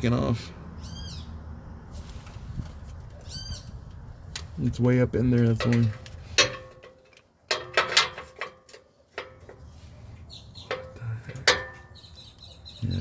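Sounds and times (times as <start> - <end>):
metal tools clanking on metal: 4.8 - 10.0, 10.6 - 12.2.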